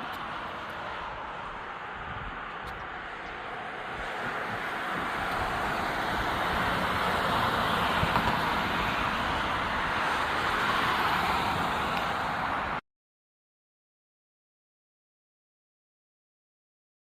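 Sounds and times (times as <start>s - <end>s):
road traffic tyres rushing: 0.0s - 12.8s.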